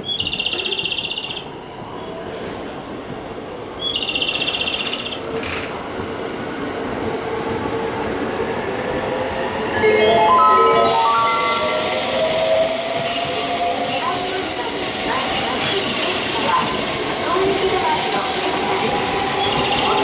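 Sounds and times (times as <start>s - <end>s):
electric train rumble: 0.0s - 20.0s
train motor tone: 9.6s - 20.0s
high trilling beeps: 9.7s - 16.1s.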